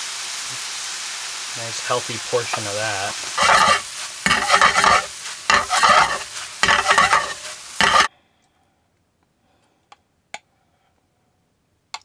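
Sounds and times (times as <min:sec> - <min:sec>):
stir-fry sizzling in a pan: 0:00.0 - 0:08.1.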